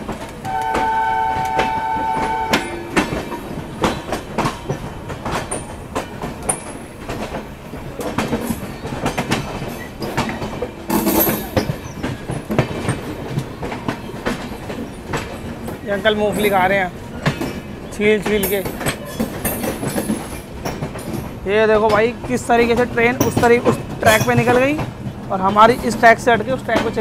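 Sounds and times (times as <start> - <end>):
train wheels clattering: 0.0 - 27.0
train horn chord: 0.4 - 3.1.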